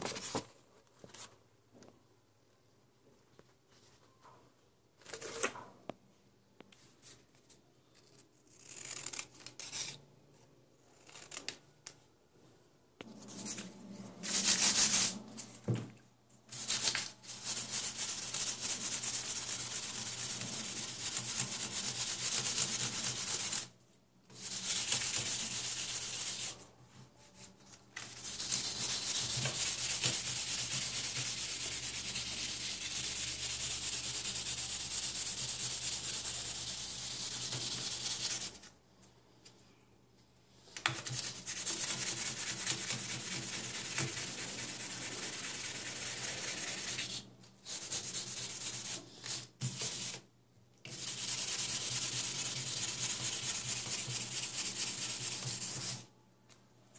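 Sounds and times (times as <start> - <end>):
scratchy sanding: 16.6 - 23.7, 24.4 - 26.6, 28.2 - 38.6, 50.9 - 56.0.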